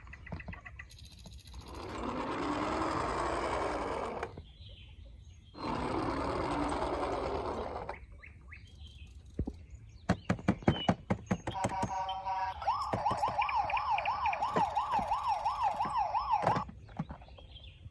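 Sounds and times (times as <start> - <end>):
small motor whirring: 1.3 - 4.4, 5.6 - 8.1.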